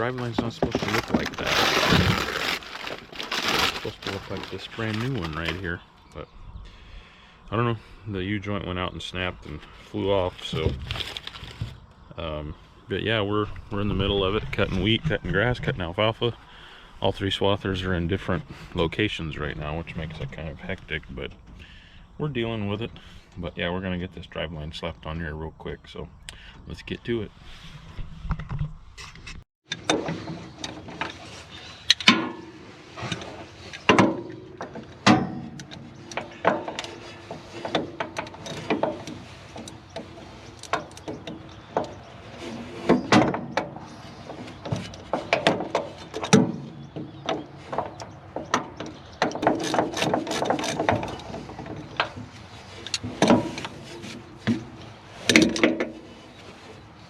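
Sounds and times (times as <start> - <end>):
metal tools clanking and scraping: 29.0 - 57.0.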